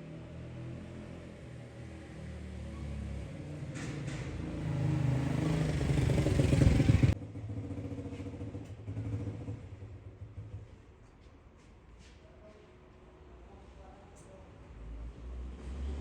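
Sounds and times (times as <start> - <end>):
engine running: 3.8 - 7.2.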